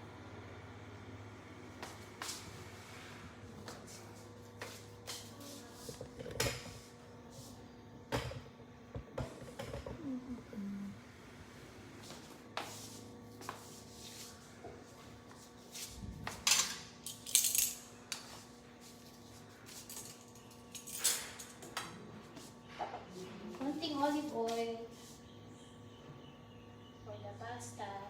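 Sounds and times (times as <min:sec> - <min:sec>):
utensils and dishes clinking: 0:16.4 - 0:18.3, 0:19.7 - 0:21.7.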